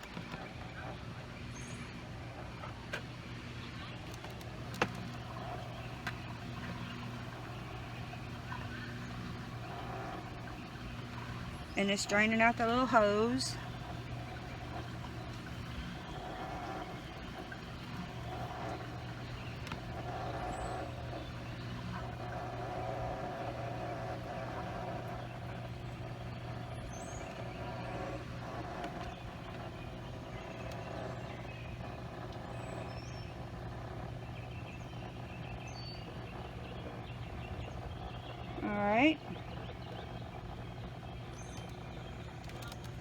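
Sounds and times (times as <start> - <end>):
washing machine humming: 0.0 - 43.0.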